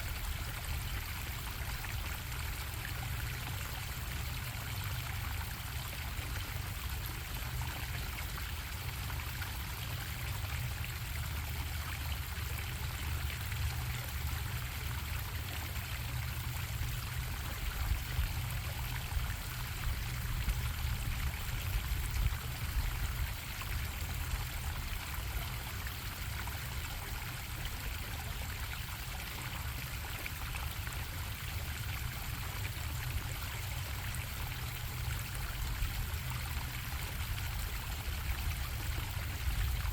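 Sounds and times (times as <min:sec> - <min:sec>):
stream water bubbling: 0:00.0 - 0:39.9.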